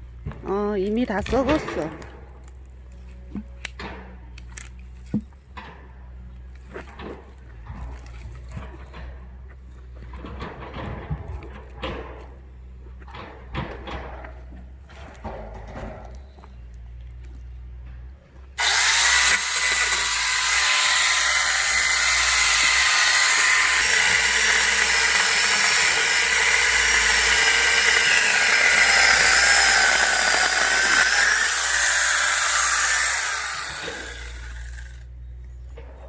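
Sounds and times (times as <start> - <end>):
electric chainsaw cutting log: 18.6 - 35.1.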